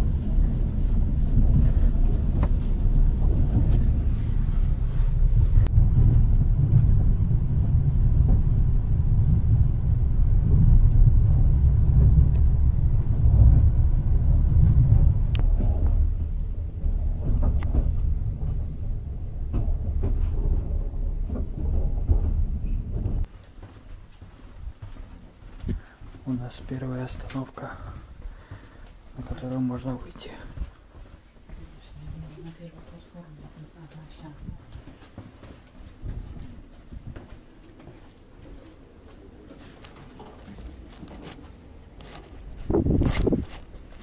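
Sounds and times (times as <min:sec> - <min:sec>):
train rumbling: 0:00.0 - 0:44.0
clicks and creaks: 0:15.0 - 0:24.5, 0:34.7 - 0:44.0.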